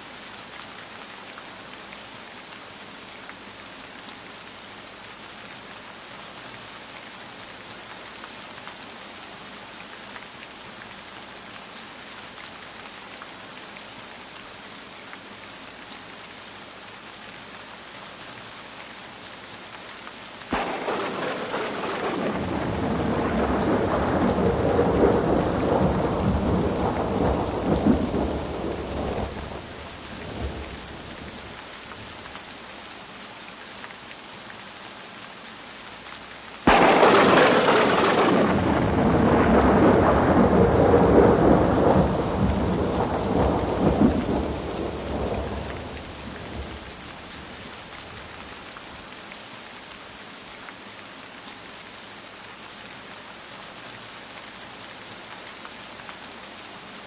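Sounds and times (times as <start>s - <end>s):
steady rain: 0.0s - 57.0s
thunder rumbling: 20.5s - 31.6s, 36.7s - 48.3s.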